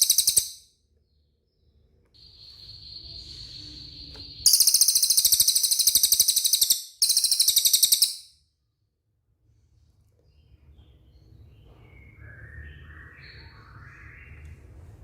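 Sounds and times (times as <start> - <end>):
bird high-pitched trill: 0.0 - 0.7, 2.2 - 8.4.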